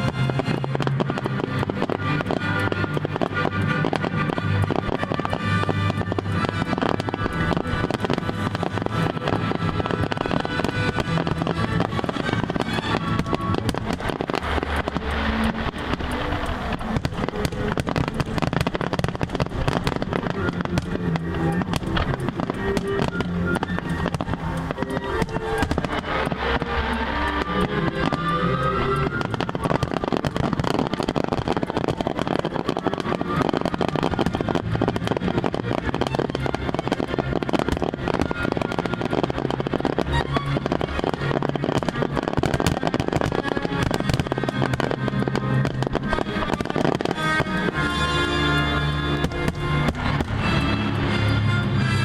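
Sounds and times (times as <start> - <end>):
fireworks crackling and popping: 0.0 - 52.0
music playing: 0.0 - 52.0.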